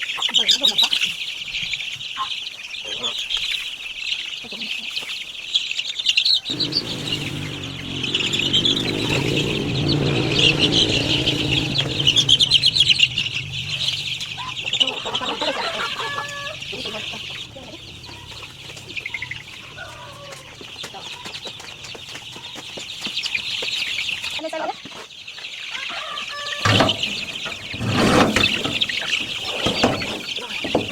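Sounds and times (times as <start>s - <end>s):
chicks peeping: 0.1s - 30.9s
wings flapping: 6.5s - 16.6s
low steady rumble: 6.5s - 20.1s
chickens clucking: 13.2s - 30.9s.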